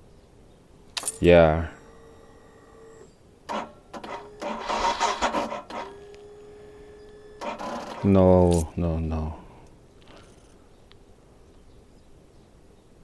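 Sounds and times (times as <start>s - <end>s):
faint steady whine: 0.0s - 13.0s
engine cranking sluggishly: 1.8s - 8.3s
electric starter clicking: 2.0s - 8.7s.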